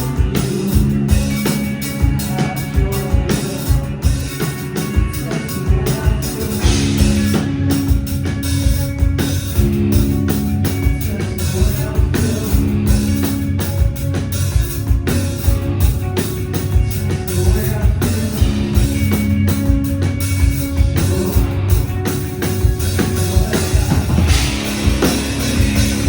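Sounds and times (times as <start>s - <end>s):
drum kit beat: 0.0s - 26.0s
guitars and bass playing chords: 0.0s - 26.0s.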